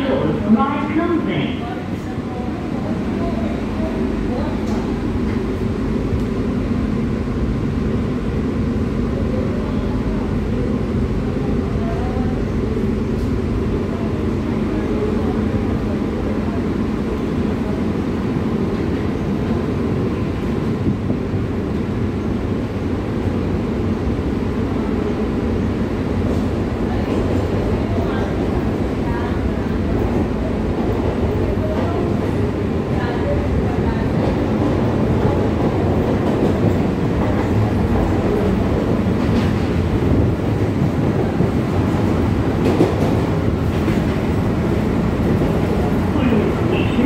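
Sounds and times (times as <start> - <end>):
train carriage rumble: 0.0 - 47.0.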